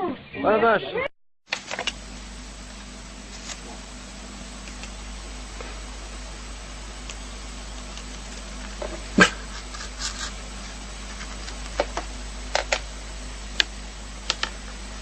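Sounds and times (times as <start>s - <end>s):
dog barking sharply: 9.2s - 9.5s.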